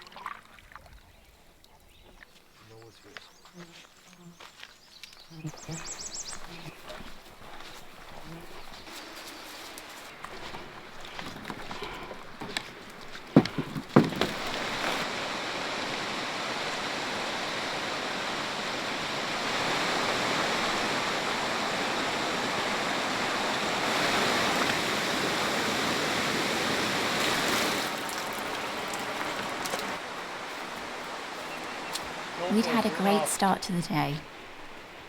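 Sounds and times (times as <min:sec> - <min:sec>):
water rushing: 0:05.7 - 0:35.0
sharp knocks: 0:13.3 - 0:15.0.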